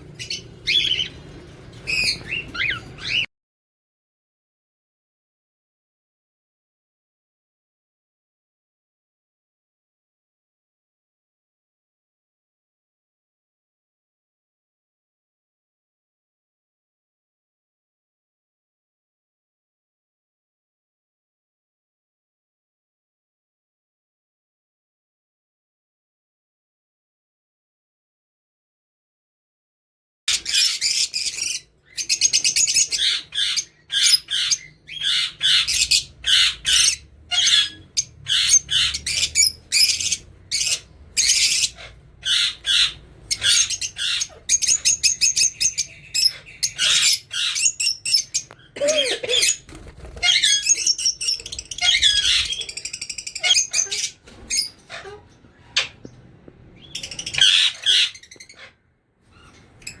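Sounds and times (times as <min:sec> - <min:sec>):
parrots squawking: 0:00.0 - 0:03.3, 0:30.3 - 0:56.2, 0:56.8 - 1:00.0.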